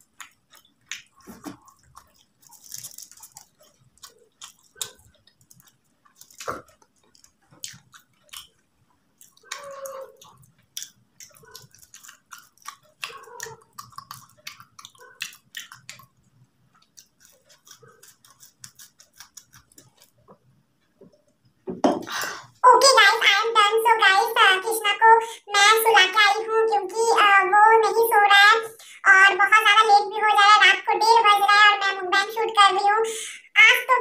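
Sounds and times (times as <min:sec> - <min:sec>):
wet mouth clicks: 0:00.0 - 0:02.4, 0:09.2 - 0:20.2
crisp pastry crackling while chewing: 0:00.0 - 0:21.4.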